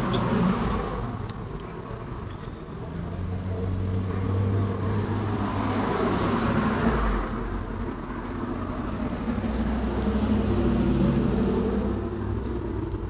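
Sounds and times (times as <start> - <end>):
cars driving past: 0.0 - 13.0
low engine hum: 0.0 - 13.0.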